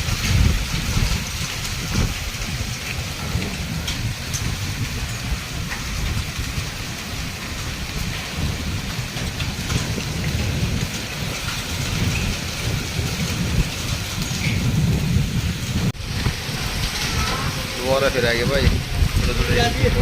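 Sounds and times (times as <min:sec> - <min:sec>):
hailstones ticking: 0:00.0 - 0:20.0
rain falling: 0:00.0 - 0:20.0
strong wind rumbling: 0:00.0 - 0:20.0.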